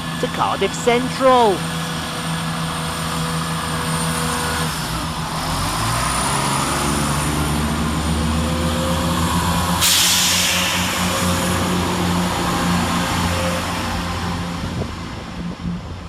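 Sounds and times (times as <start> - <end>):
diesel train engines under load: 0.0 - 16.0
loud hiss: 9.8 - 11.9.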